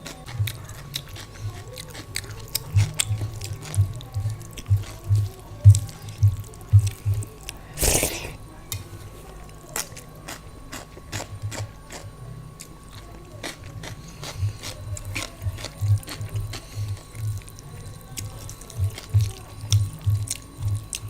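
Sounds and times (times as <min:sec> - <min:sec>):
mouth clicks: 0:07.8 - 0:08.4
person chewing: 0:07.8 - 0:08.4.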